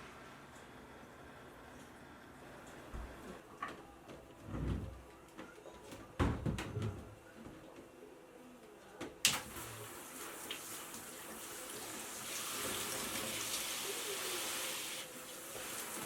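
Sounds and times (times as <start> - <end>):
tap water running into sink: 9.3 - 16.0.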